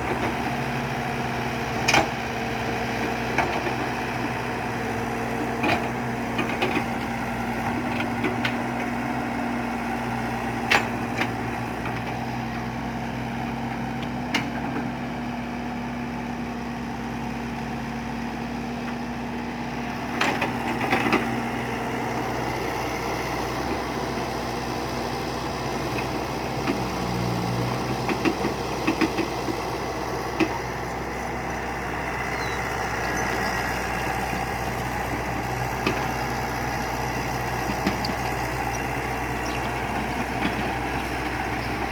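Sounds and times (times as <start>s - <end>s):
excavator engine running: 0.0s - 41.9s.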